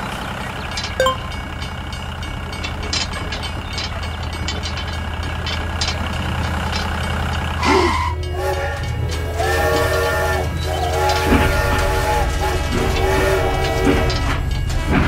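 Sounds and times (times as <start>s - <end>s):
toy train electronic whistle: 7.6s - 14.3s.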